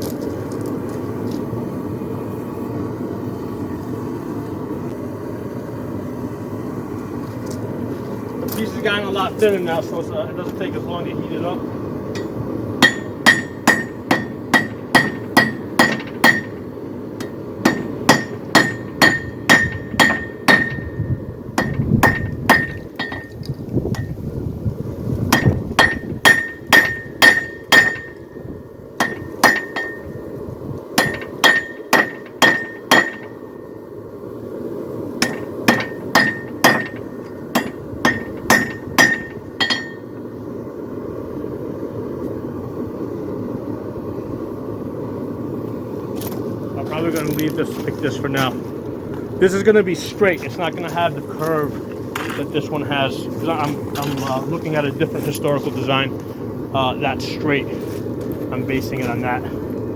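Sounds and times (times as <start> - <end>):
hammer ringing on steel: 12.2 - 16.6, 17.6 - 21.0, 21.6 - 23.3, 25.4 - 28.2, 31.0 - 33.4, 35.2 - 37.0, 37.6 - 40.1.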